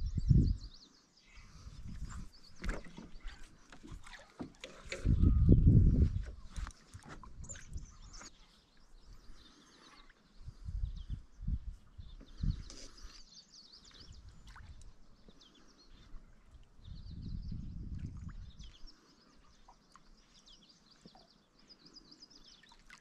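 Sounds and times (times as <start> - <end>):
small birds chirping: 0.0 - 23.0
dull low thumps: 5.0 - 6.6.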